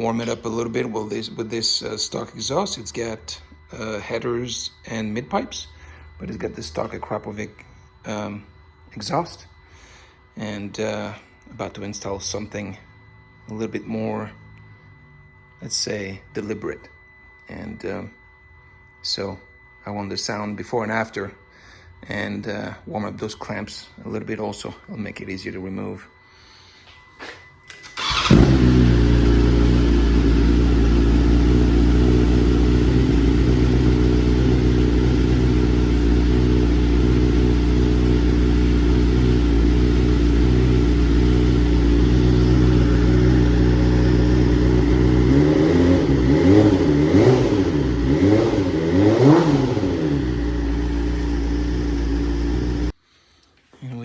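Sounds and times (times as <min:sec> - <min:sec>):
motorcycle engine idling and revving: 0:28.0 - 0:53.0.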